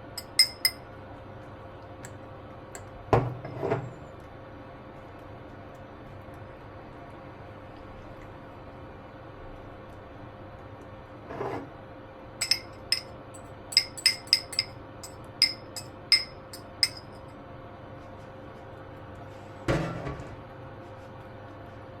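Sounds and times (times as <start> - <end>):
utensil clinking against bowl: 0.0 - 0.9, 12.4 - 17.3.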